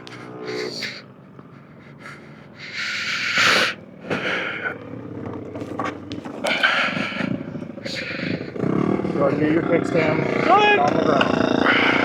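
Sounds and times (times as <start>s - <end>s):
person breathing hard: 0.0s - 5.0s, 6.4s - 9.2s.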